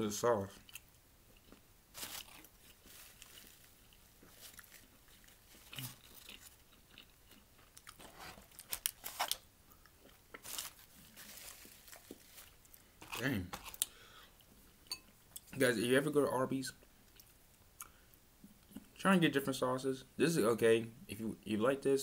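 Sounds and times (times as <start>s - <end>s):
biting and chewing: 0.6s - 13.9s
soft crunches: 1.4s - 9.4s, 10.0s - 14.0s.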